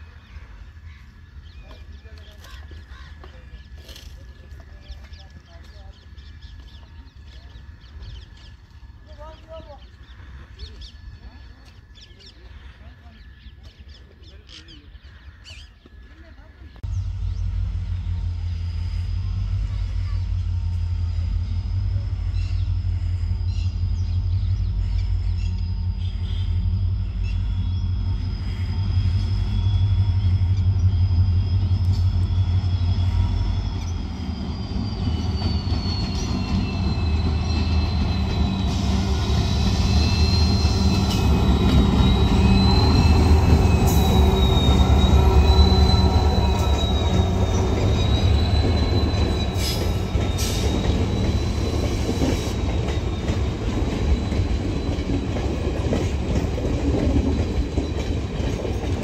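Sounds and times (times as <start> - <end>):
train rumbling past: 0.0 - 59.0
wavering wheel squeal: 20.5 - 56.0.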